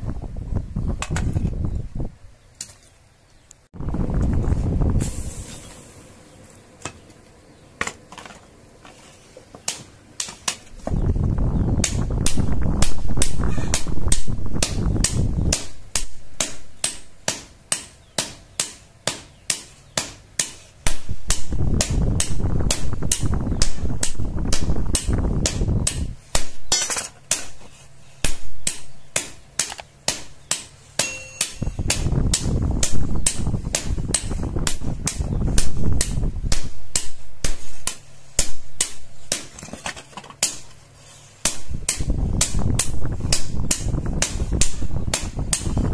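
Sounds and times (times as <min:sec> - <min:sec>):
low rushing noise: 0:03.8 - 0:06.4
hammer striking steel on anvil: 0:14.6 - 0:21.5, 0:28.2 - 0:32.5, 0:35.6 - 0:39.5.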